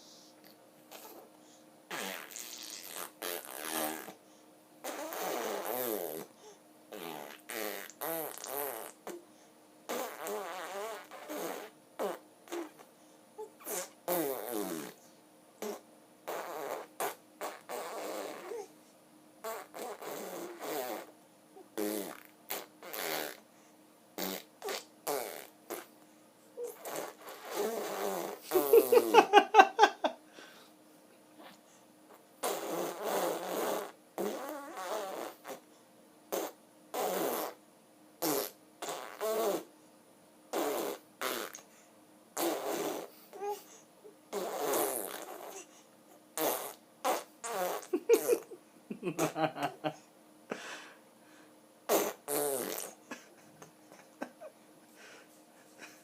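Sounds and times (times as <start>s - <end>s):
voice making buzzing wavering sounds: 46.4s - 50.0s.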